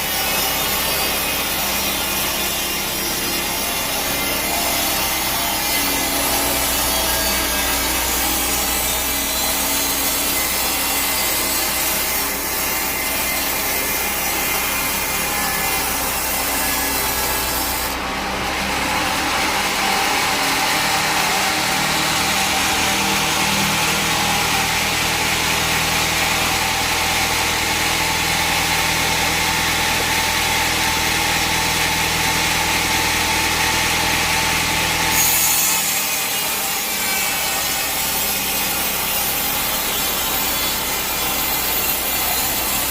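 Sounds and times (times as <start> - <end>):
bandsaw cutting log: 0.0 - 42.9.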